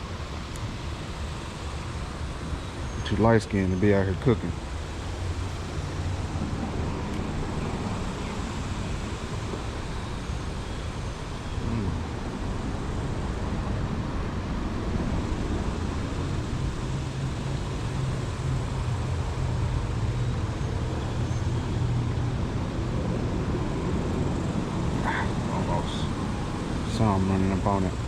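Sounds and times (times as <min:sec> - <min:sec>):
road traffic rumble: 0:00.0 - 0:28.0
vehicle engine drone: 0:00.0 - 0:28.0.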